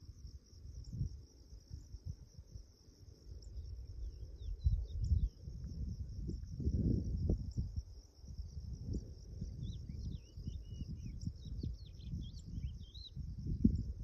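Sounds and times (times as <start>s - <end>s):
crickets trilling: 0.0s - 14.0s
wind buffeting microphone: 0.2s - 2.7s, 3.5s - 14.0s
bird chirps: 9.6s - 13.2s.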